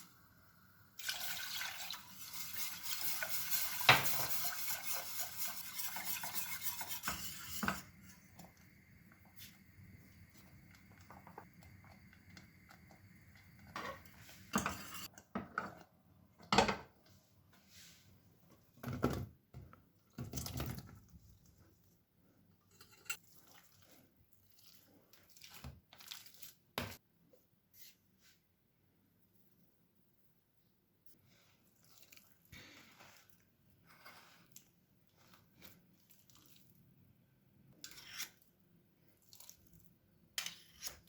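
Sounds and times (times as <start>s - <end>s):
dishes and utensils clattering: 13.7s - 15.8s, 22.6s - 23.2s.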